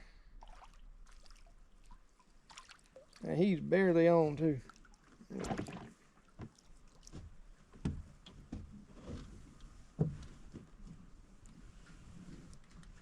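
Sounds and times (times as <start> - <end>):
knocks and clicks in boat: 5.3 - 11.0.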